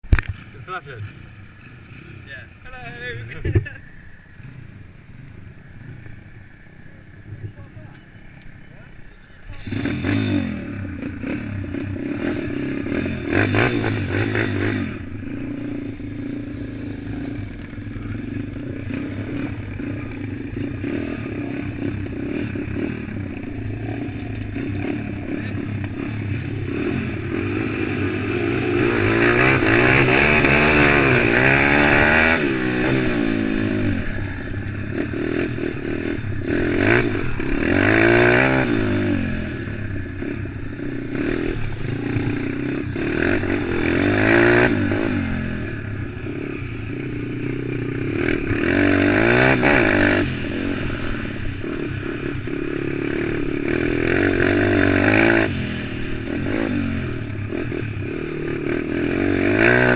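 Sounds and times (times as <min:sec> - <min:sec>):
motorbike engine revving: 0:08.7 - 0:59.9.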